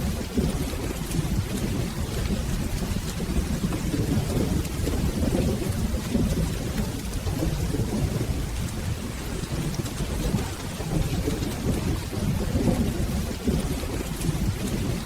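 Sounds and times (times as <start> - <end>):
rolling thunder: 0.0 - 15.0
steady rain: 0.0 - 15.0.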